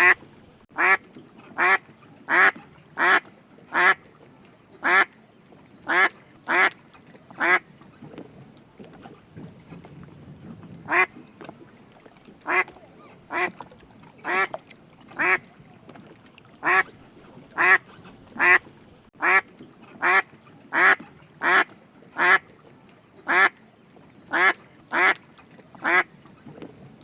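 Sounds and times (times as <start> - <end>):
duck quacking: 0.8 - 4.0, 4.8 - 5.1, 5.9 - 6.8, 7.4 - 7.6, 10.9 - 11.1, 12.4 - 12.7, 13.3 - 13.5, 14.2 - 14.5, 15.2 - 15.4, 16.6 - 16.9, 17.6 - 17.8, 18.4 - 18.6, 19.2 - 19.4, 20.0 - 22.4, 23.3 - 23.5, 24.3 - 25.2, 25.8 - 26.1.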